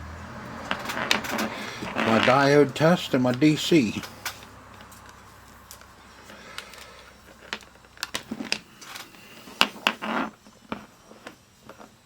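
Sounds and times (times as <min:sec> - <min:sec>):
scraping rustle: 0:00.6 - 0:02.8.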